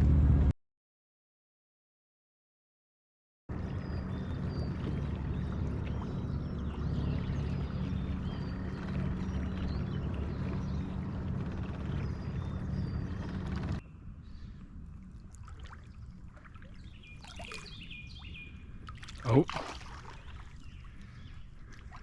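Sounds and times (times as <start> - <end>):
boat motor hum: 3.5 - 22.0
rushing water: 15.1 - 17.8, 18.8 - 22.0.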